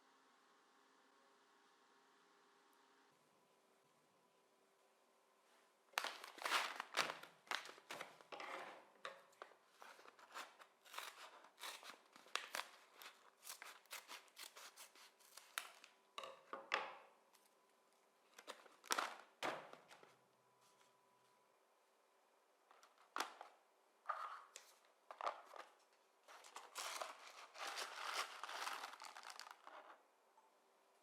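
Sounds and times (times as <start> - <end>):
packaging being cut and handled: 6.0 - 8.8, 9.8 - 15.9, 26.3 - 29.7.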